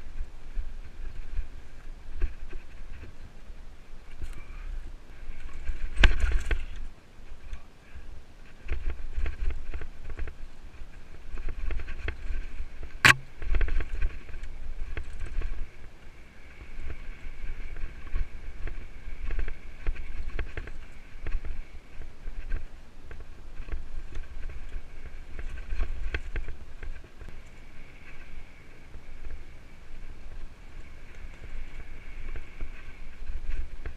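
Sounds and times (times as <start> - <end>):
wind on microphone: 0.0 - 33.9
bike frame rattling: 5.2 - 7.6
sharp loud knock: 13.0 - 13.3.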